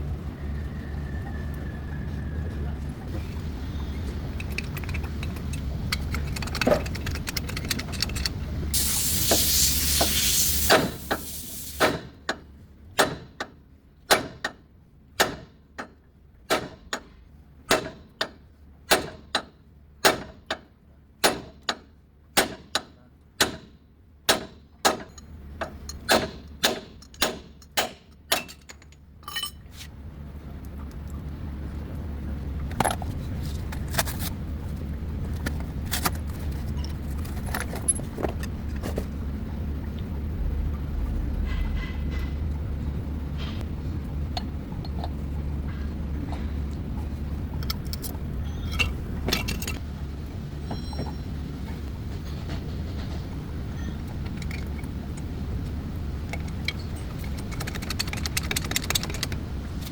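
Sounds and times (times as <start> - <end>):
spraying hiss: 8.8 - 11.9.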